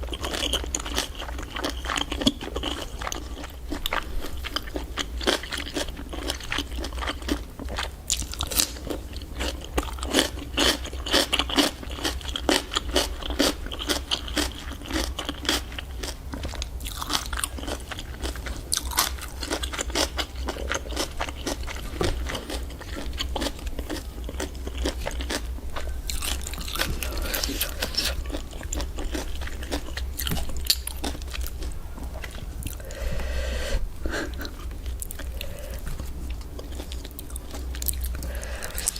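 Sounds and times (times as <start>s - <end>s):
crunching bites and chewing: 0.0s - 33.0s, 34.2s - 38.9s
steady low hum: 0.0s - 38.9s.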